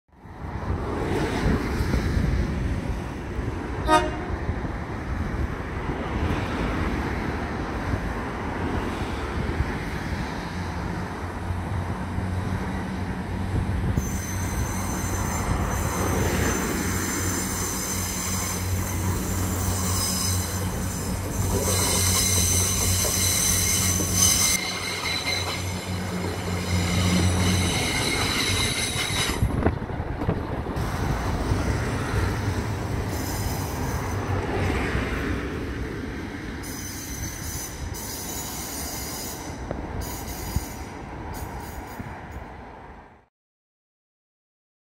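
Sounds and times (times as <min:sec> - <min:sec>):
train horn toot: 0:03.8 - 0:04.5
high-pitched wheel squeal: 0:14.0 - 0:29.5, 0:33.1 - 0:34.4, 0:36.6 - 0:42.1.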